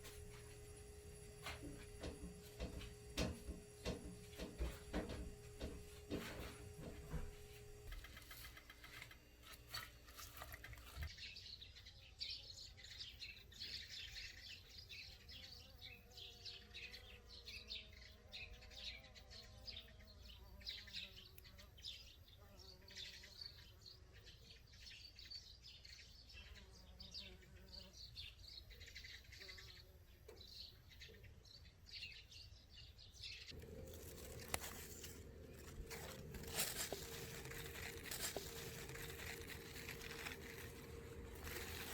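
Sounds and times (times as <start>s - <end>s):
low steady hum: 0.0s - 11.9s, 33.4s - 41.9s
faint birds chirping: 0.0s - 41.9s.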